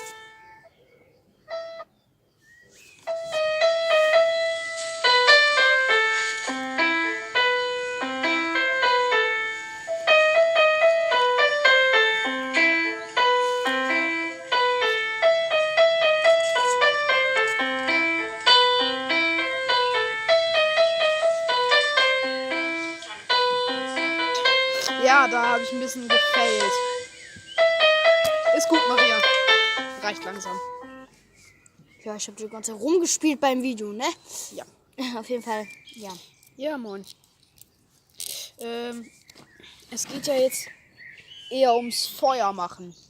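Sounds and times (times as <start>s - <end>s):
electronic keyboard melody: 0.0s - 0.8s, 1.5s - 2.0s, 3.0s - 31.2s.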